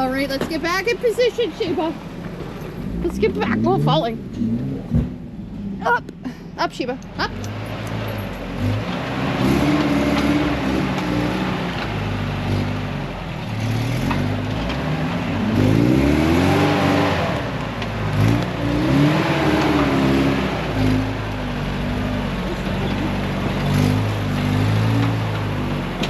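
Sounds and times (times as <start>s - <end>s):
off-road engine revving hard: 0.0s - 26.0s.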